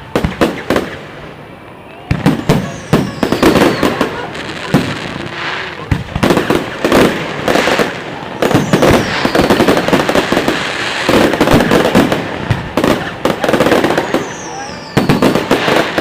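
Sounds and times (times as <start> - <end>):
falling firework whistle: 0.0 - 16.0
firework bangs and crackling: 0.0 - 16.0.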